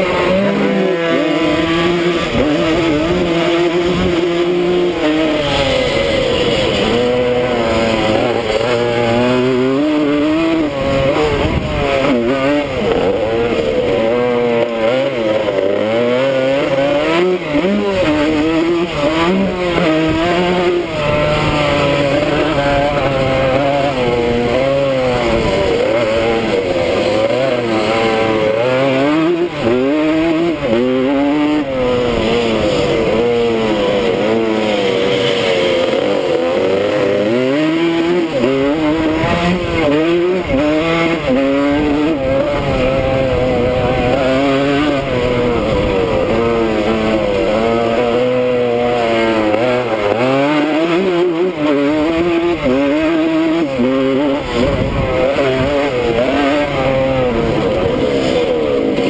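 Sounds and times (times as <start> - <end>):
two-stroke motorcycle engine revving: 0.0 - 59.0
wind rush: 54.5 - 55.7.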